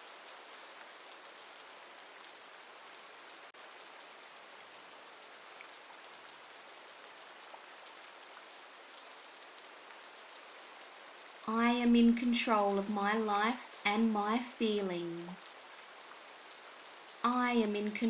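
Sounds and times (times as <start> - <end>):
steady rainfall hiss: 0.0 - 18.0.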